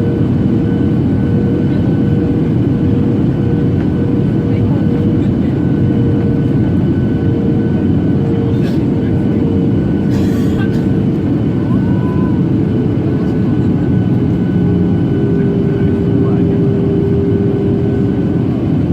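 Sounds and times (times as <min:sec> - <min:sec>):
jet engine cabin rumble: 0:00.0 - 0:18.9.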